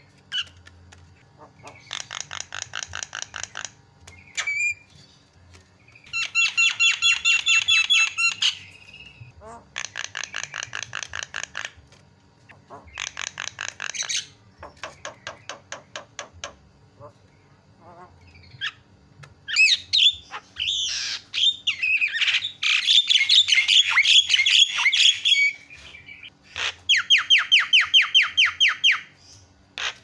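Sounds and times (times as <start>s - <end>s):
bird harsh repeated notes: 6.0s - 9.0s.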